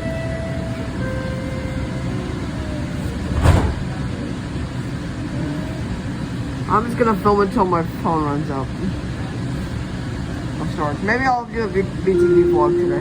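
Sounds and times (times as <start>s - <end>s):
train rumbling in tunnel: 0.0s - 13.0s
sharp clunk: 3.3s - 3.9s.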